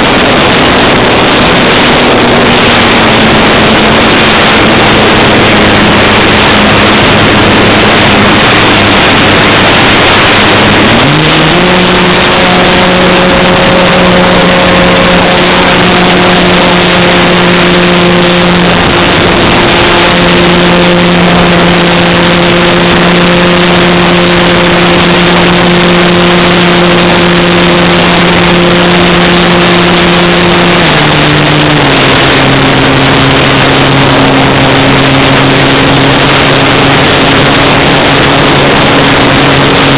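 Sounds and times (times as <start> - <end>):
loud rushing hiss: 0.0 - 39.9
model airplane motor and propeller: 0.0 - 39.9.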